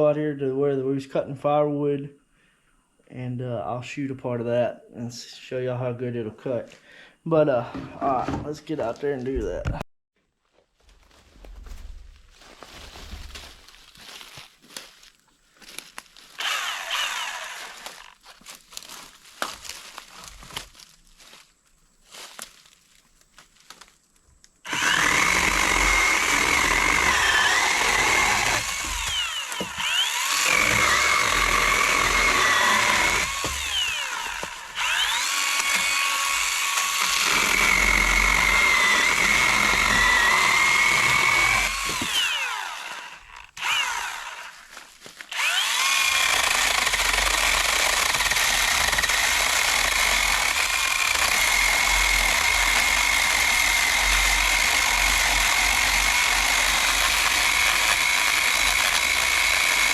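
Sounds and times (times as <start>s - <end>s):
electric chainsaw cutting wood: 16.3s - 18.2s, 24.6s - 59.9s.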